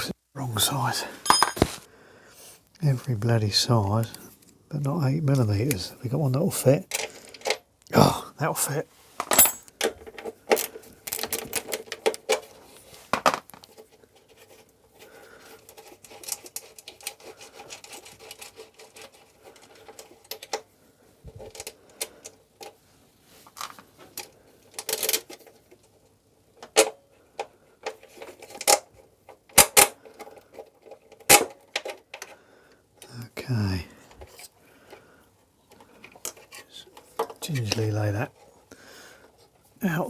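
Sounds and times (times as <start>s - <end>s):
metal tools clinking: 1.1s - 1.8s, 9.2s - 9.7s.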